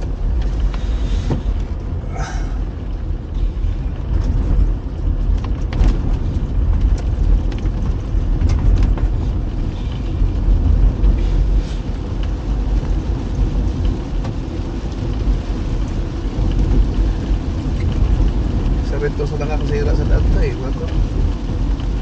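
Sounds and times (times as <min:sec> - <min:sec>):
car driving on wet road: 0:00.0 - 0:22.0.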